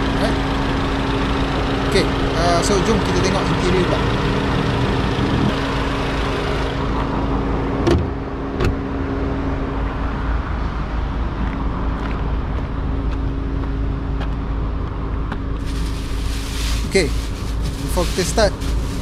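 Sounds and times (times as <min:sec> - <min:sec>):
car engine idling: 0:00.0 - 0:09.8, 0:15.3 - 0:19.0.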